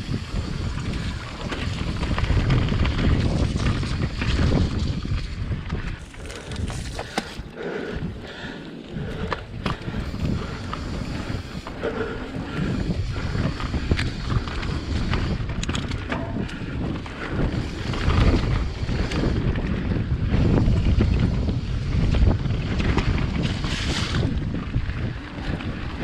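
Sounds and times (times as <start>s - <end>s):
bike chain and frame rattling: 0.0s - 7.6s, 8.2s - 26.0s
wind rumbling on microphone: 0.0s - 26.0s.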